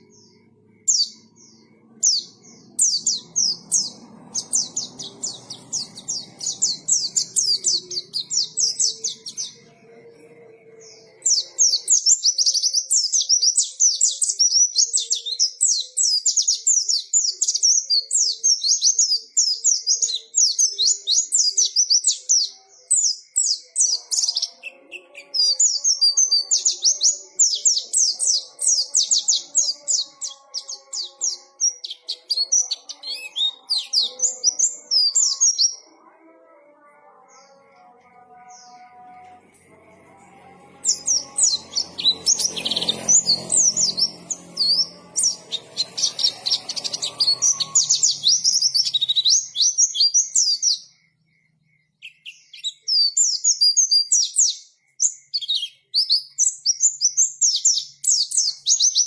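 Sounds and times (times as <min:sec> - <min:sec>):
bird twittering song: 0:00.0 - 0:35.9, 0:40.8 - 0:59.0.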